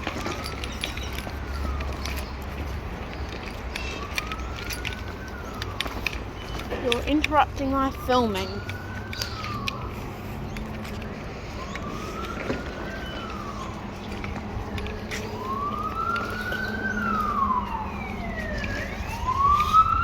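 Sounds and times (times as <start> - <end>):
higher-pitched siren: 0.0 - 20.0
siren wailing: 0.0 - 20.0.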